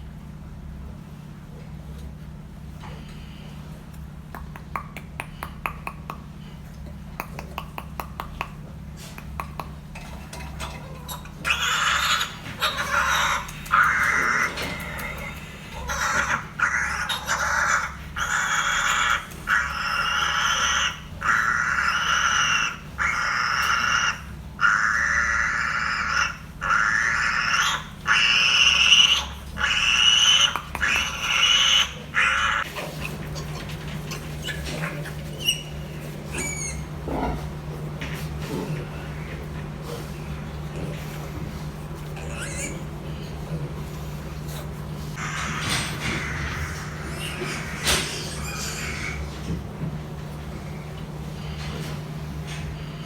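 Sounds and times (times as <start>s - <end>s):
piglets squealing: 10.6s - 32.7s, 33.4s - 37.3s, 42.1s - 43.3s, 45.1s - 49.5s.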